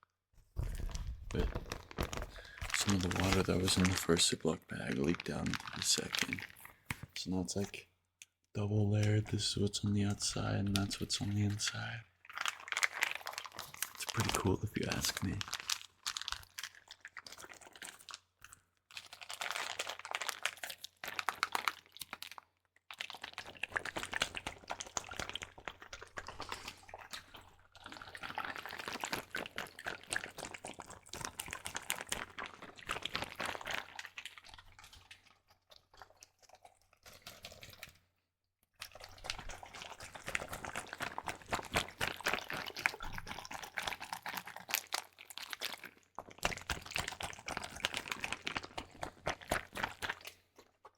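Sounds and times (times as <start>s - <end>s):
water squishing in a plastic bag: 0.4s - 50.9s
plastic crinkling: 0.6s - 7.6s, 10.3s - 18.2s, 19.0s - 22.4s, 27.8s - 35.0s, 39.0s - 50.7s.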